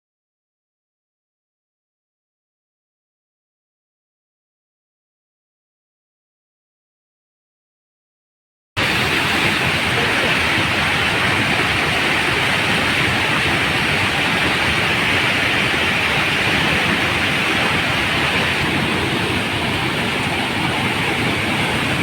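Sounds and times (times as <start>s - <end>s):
floodwater rushing: 8.8s - 22.0s.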